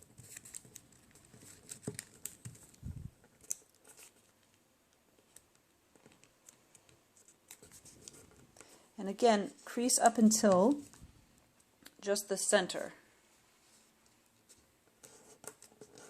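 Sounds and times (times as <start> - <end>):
paper crinkling: 0.0 - 4.6, 5.2 - 8.8.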